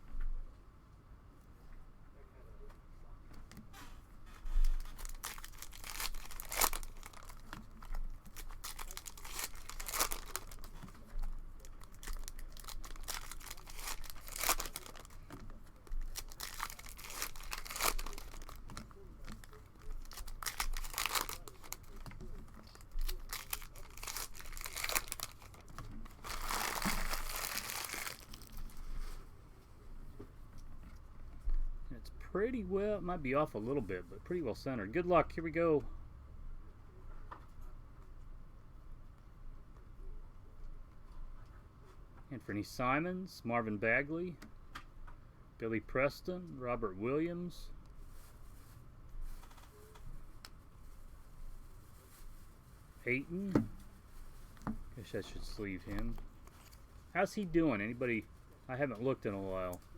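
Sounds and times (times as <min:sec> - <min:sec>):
cellophane wrappers crinkling: 0:04.4 - 0:29.2, 0:54.0 - 0:58.0.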